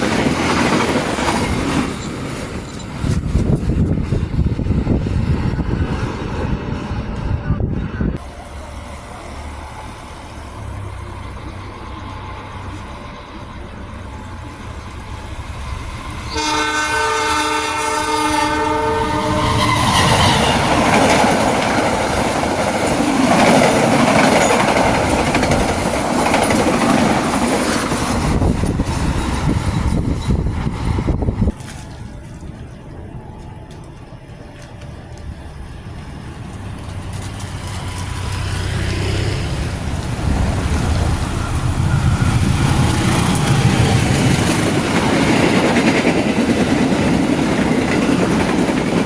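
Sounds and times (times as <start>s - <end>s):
rushing wheel and carriage noise: 0.0s - 16.4s, 18.6s - 49.0s
locomotive rumble: 0.0s - 49.0s
multi-tone train horn: 16.3s - 20.9s.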